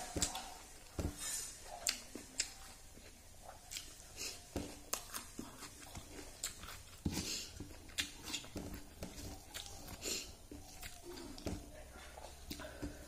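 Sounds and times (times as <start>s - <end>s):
breathy sniff: 1.2s - 1.6s, 7.1s - 7.6s, 10.0s - 10.4s
wet chewing and lip smacks: 1.6s - 13.0s.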